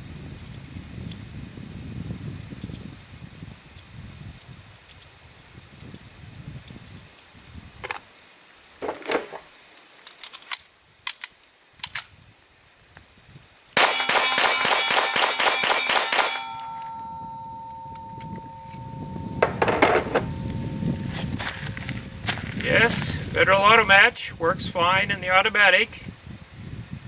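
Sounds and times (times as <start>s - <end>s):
metallic clangs: 8.8s - 9.5s, 13.8s - 22.6s
gun handling clicks: 9.8s - 12.1s
rifle gunshots: 13.8s - 16.6s
ringing metallic tone: 13.8s - 23.4s.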